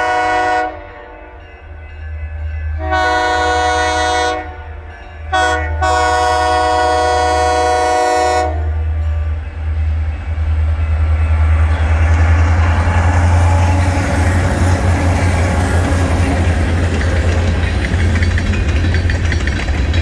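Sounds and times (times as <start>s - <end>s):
locomotive air horn: 0.0s - 1.2s, 2.8s - 4.6s, 5.3s - 8.8s
train rumble and wheel noise: 0.0s - 20.0s.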